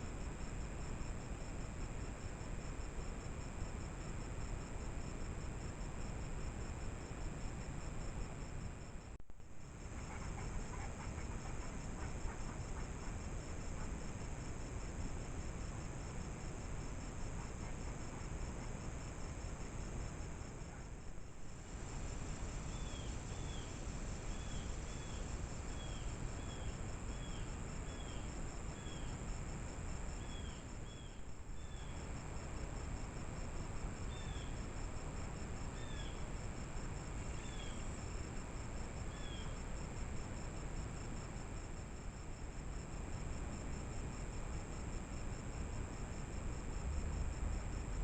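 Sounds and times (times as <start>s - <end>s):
microphone hiss: 0.0s - 48.0s
insects trilling: 9.6s - 20.9s, 21.5s - 47.9s.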